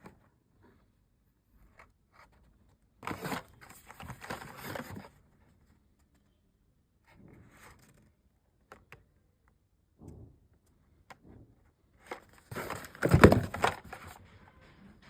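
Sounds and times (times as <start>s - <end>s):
packaging crinkling and rustling: 12.4s - 14.2s.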